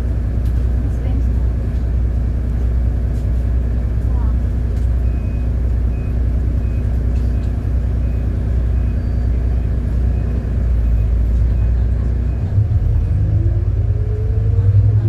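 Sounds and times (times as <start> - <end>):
bus engine rumbling: 0.0 - 15.0
faint short beep: 5.1 - 13.1.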